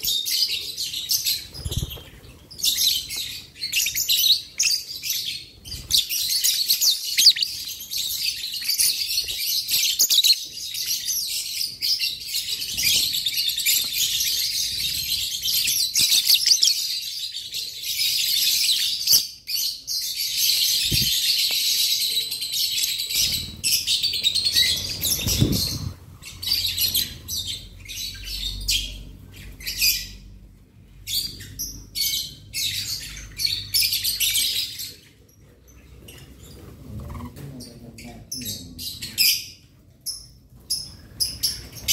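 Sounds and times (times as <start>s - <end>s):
lovebirds chirping: 0.0s - 41.9s.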